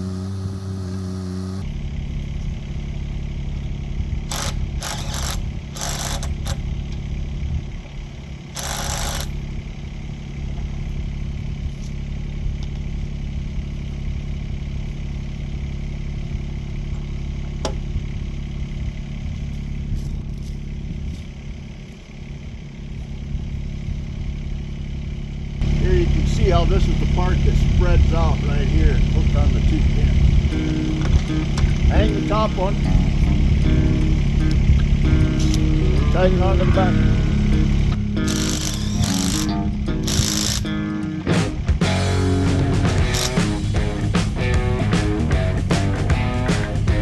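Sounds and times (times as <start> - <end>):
mini-excavator engine running: 0.0 - 47.0
short sharp noise bursts: 4.2 - 6.6, 33.2 - 47.0.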